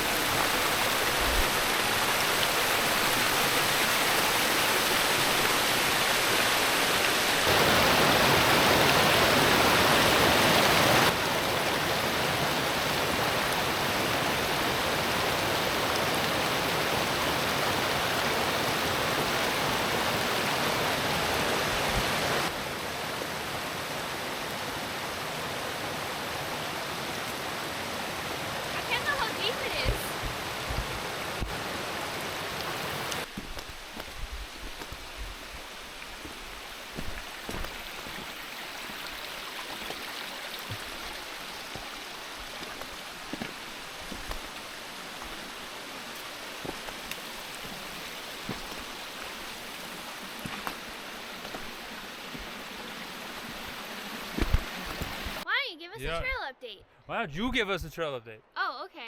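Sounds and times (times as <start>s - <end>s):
forest creek flowing: 0.0s - 56.5s.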